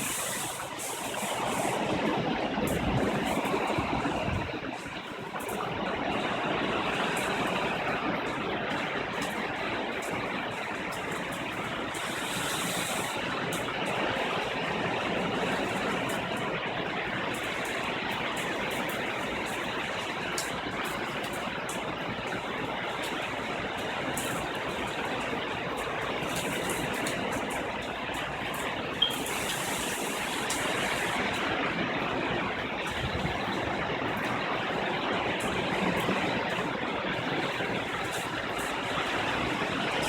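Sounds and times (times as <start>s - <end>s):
hurricane wind: 0.0s - 40.0s
rain: 0.0s - 40.0s.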